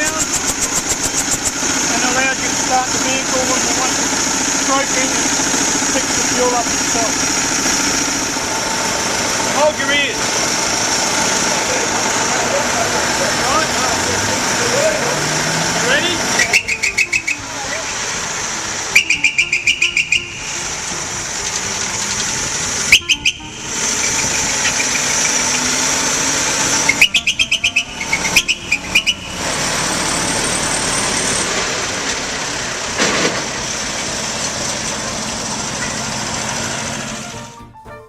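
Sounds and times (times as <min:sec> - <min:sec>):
truck engine running: 0:00.0 - 0:38.0
truck horn pulsing blasts: 0:13.2 - 0:21.8, 0:22.6 - 0:30.1.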